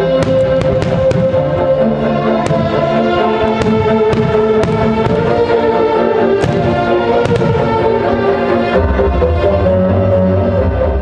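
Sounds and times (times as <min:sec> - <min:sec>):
music with long held notes: 0:00.0 - 0:11.0
fireworks bursting: 0:00.1 - 0:08.1.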